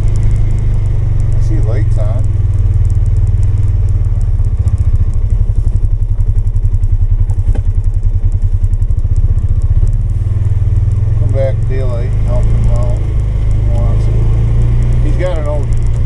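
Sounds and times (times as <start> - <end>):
single-cylinder engine running: 0.0 - 16.0.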